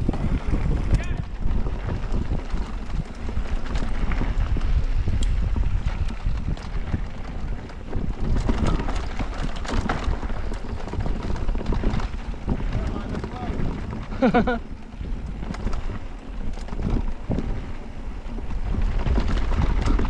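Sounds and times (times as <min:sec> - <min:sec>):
bike rattling over rough ground: 0:00.0 - 0:20.0
wind rushing over microphone: 0:00.0 - 0:20.0.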